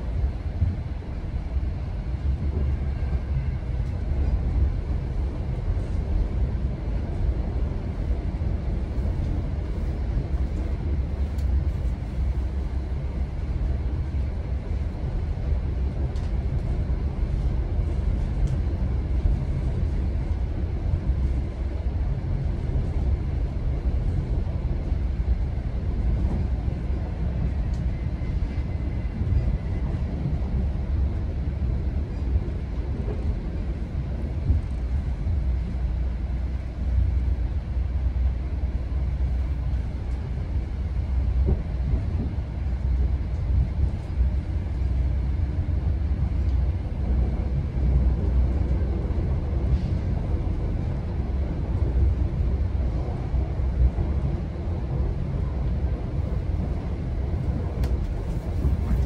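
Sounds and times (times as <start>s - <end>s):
train rumble inside coach: 0.0s - 59.0s.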